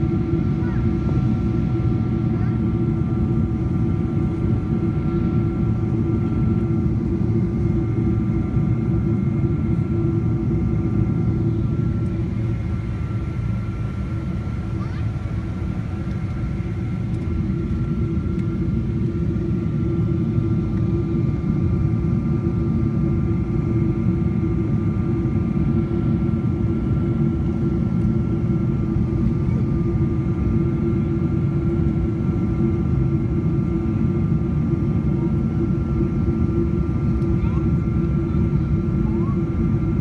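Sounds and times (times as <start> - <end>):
airplane cabin rumble of airflow and engines: 0.0 - 40.0
steady hum: 0.0 - 40.0.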